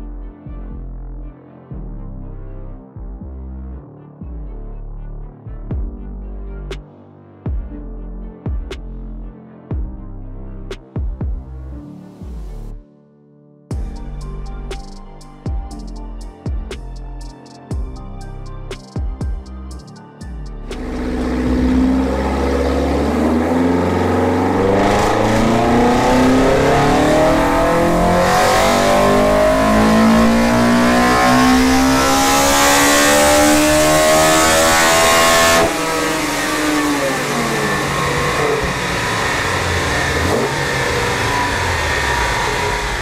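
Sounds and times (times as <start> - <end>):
engine coasting down: 20.7 - 32.8, 33.5 - 43.0
engine revving at full throttle: 20.8 - 43.0.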